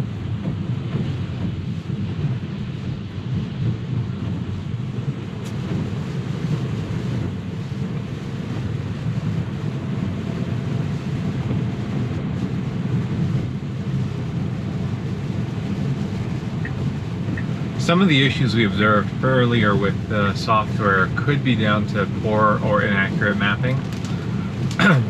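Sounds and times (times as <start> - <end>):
tyre noise on wet road: 0.0 - 25.0.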